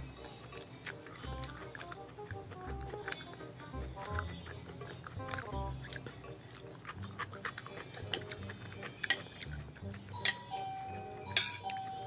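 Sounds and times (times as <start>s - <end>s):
crunchy chewing: 0.0s - 12.0s
metal spoon clinking on plate: 8.1s - 9.5s, 10.1s - 12.0s.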